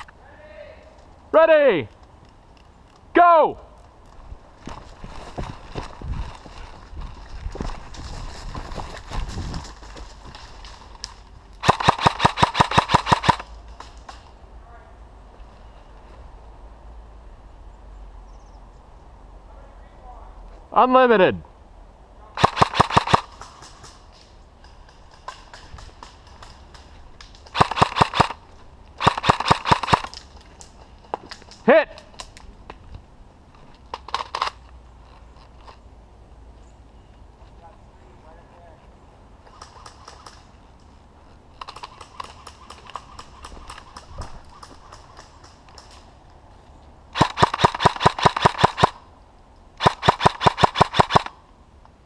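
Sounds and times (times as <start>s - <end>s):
airsoft gun firing bursts: 11.6s - 13.4s, 22.4s - 23.5s, 27.5s - 28.4s, 29.0s - 30.1s, 47.2s - 49.0s, 49.8s - 51.3s
airsoft gun single shots: 22.4s - 23.4s, 27.5s - 28.4s, 47.2s - 49.0s, 49.8s - 51.3s.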